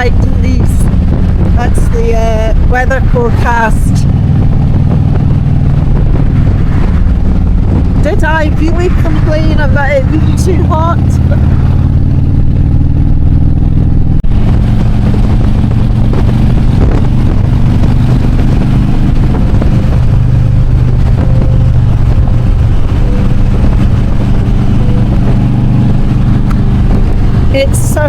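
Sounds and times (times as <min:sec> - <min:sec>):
motorcycle engine running: 0:00.0 - 0:28.0
wind noise: 0:00.0 - 0:28.0.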